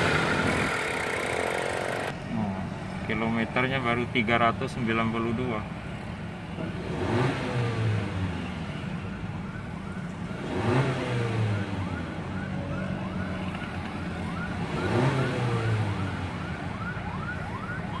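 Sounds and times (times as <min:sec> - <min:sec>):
car engine revving: 0:00.0 - 0:02.5, 0:06.5 - 0:08.7, 0:10.4 - 0:12.5, 0:14.3 - 0:16.5.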